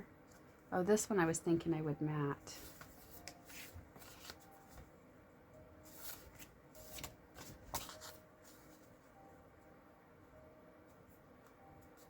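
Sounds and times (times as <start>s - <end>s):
paper rustling: 2.5s - 4.9s, 5.8s - 9.1s.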